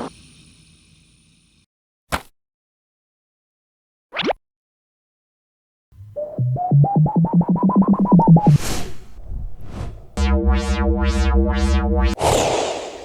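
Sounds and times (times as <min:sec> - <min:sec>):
beeps climbing in pitch: 0:06.0 - 0:08.6, 0:10.2 - 0:12.2
pulsing buzzy tone: 0:06.0 - 0:08.6, 0:10.2 - 0:12.2
short whooshes: 0:08.6 - 0:10.2.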